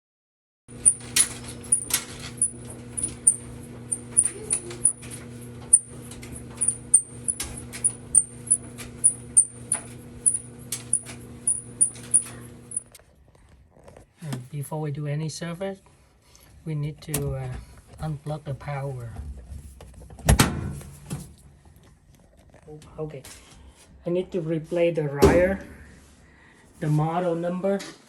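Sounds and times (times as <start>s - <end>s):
clothes dryer motor hum: 0.7s - 13.0s, 16.9s - 21.6s, 25.2s - 27.1s
high squeak of turning drum: 0.8s - 12.9s.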